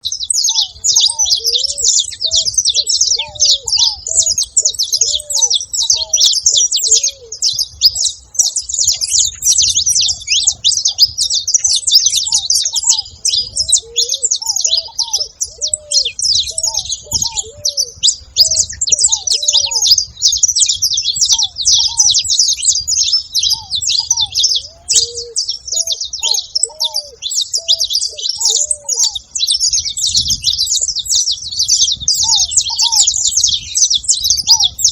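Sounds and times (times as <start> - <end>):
finches chirping: 0.0 - 34.9
lower arching bird call: 0.2 - 8.0, 11.6 - 20.1, 21.2 - 30.0, 32.1 - 33.8.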